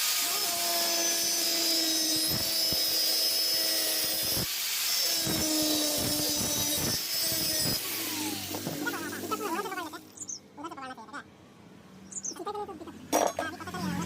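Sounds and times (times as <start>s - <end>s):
electric power tool running: 0.0s - 10.1s.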